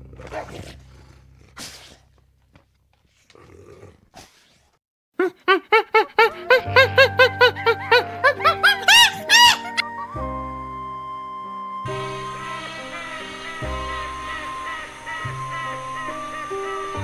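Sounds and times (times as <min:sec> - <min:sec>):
wolves snarling: 0:03.2 - 0:04.6, 0:11.9 - 0:17.0.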